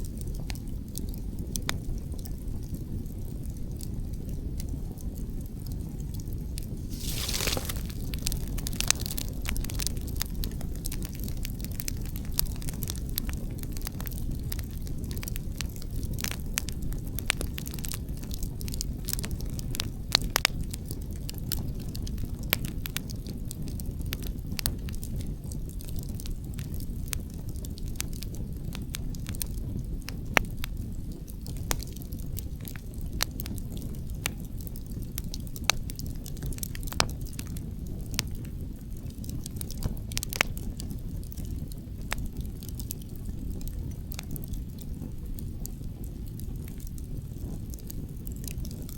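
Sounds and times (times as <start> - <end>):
campfire crackling and popping: 6.8 - 18.0, 35.2 - 48.9.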